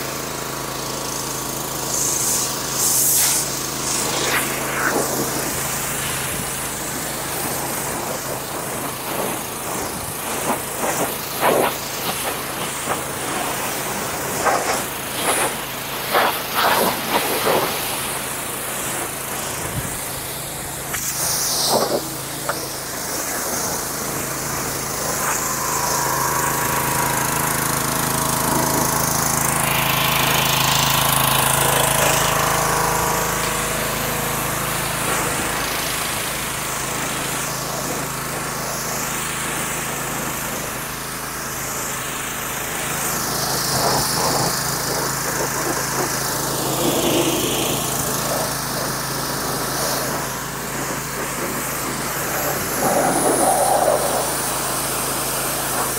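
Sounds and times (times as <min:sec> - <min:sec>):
pressure washer spraying water: 0:00.0 - 0:55.9
humming tone: 0:21.8 - 0:30.5.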